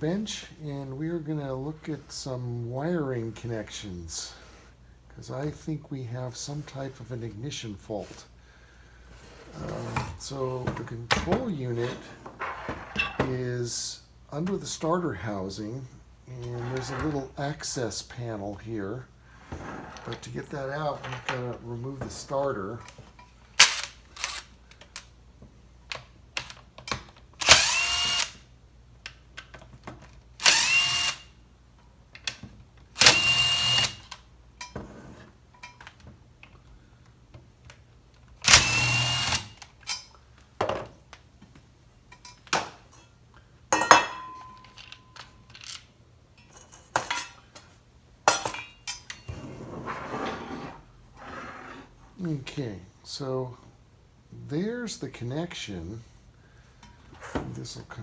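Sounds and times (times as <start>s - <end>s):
power screwdriver whine: 27.4s - 28.4s, 30.4s - 31.3s, 33.0s - 34.1s, 38.4s - 39.6s
clicks and knocks of tools: 44.2s - 47.7s.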